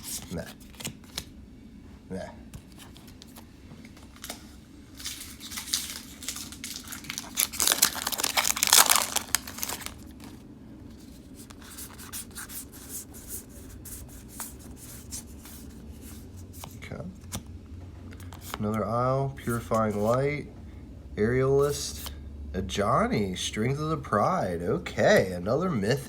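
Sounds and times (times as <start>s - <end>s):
foil wrapper tearing and crinkling: 5.0s - 10.4s.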